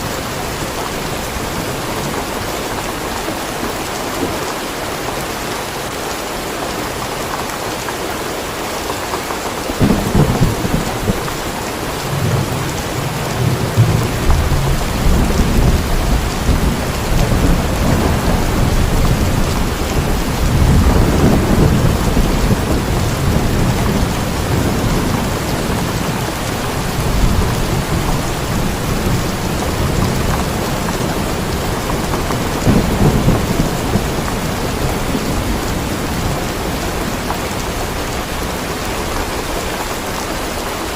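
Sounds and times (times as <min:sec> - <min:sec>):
heavy rain: 0:00.0 - 0:40.9
rolling thunder: 0:09.8 - 0:38.4.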